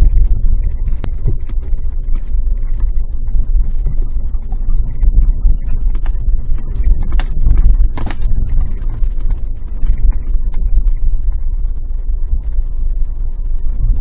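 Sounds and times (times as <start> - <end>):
small clicks and rattles: 5.8 - 10.8
car driving on gravel rumble: 7.0 - 10.0.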